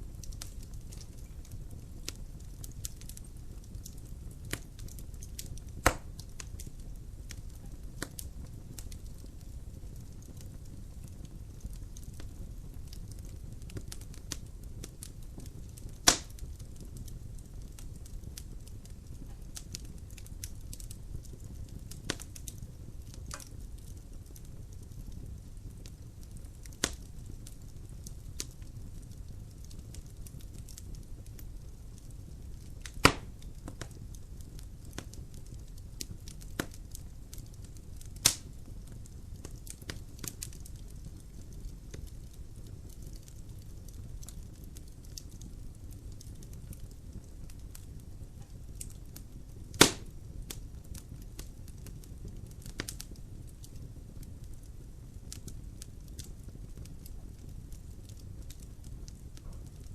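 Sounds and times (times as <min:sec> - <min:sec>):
crackles and snaps of fire: 0:00.0 - 0:59.9
low rumble of fire: 0:00.0 - 0:59.9
sharp loud pops: 0:33.0 - 0:33.3.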